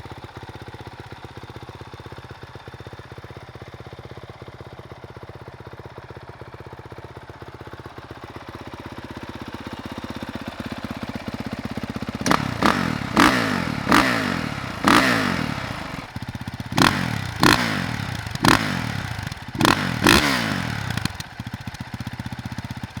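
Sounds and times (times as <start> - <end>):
motorcycle engine idling and revving: 0.0 - 23.0.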